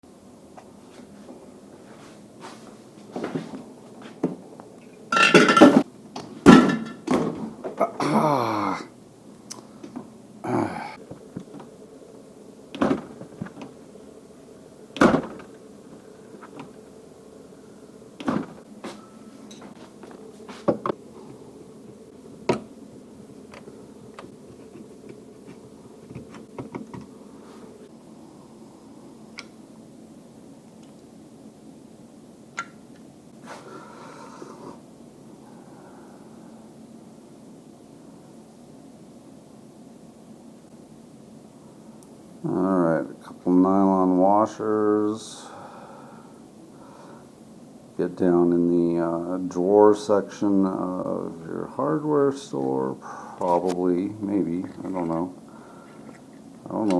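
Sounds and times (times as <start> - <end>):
steady low hum: 10.2 - 29.3
fridge doors clinking and knocking: 12.7 - 13.8, 14.9 - 15.6, 18.1 - 18.6.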